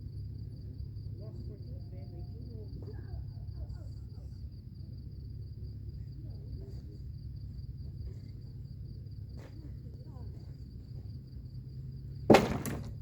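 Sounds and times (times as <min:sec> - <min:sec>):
crickets chirring: 0:00.0 - 0:13.0
low steady rumble: 0:00.0 - 0:13.0
sharp knock: 0:12.3 - 0:12.9.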